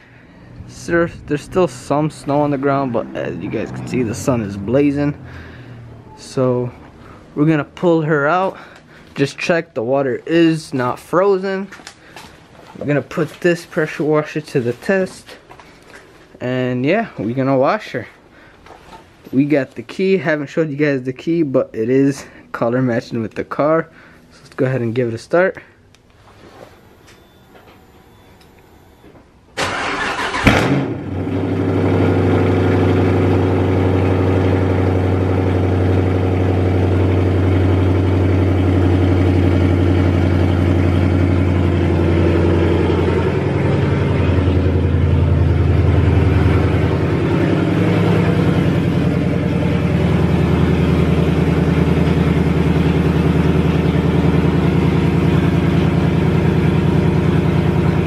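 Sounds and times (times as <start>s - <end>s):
car engine starting and idling: 0.0s - 9.3s, 29.6s - 58.0s.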